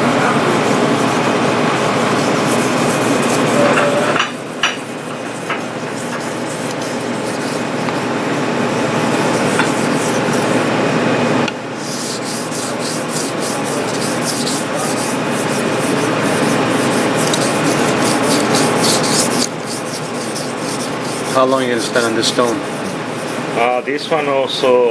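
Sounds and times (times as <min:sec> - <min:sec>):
knife scraping on whetstone: 0:02.0 - 0:08.1, 0:08.9 - 0:10.6, 0:11.8 - 0:23.5.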